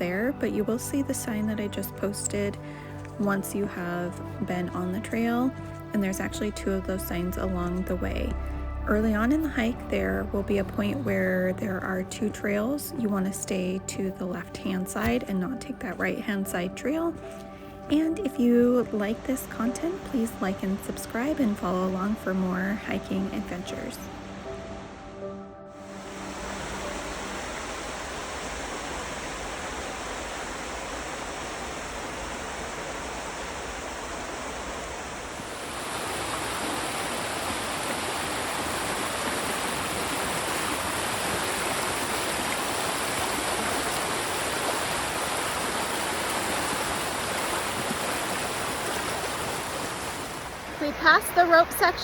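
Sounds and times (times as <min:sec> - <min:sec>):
river water rushing: 0:25.8 - 0:52.0.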